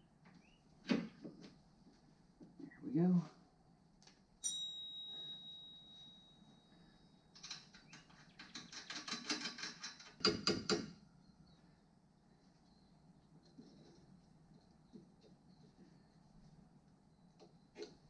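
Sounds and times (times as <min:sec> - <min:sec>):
ringing metallic clink: 0:04.4 - 0:07.2
rapid tool clicks: 0:07.4 - 0:10.9.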